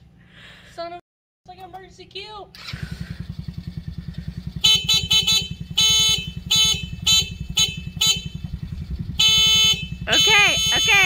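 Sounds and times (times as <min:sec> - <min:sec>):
small engine idling: 0:02.4 - 0:11.0
car horn honking: 0:04.4 - 0:11.0.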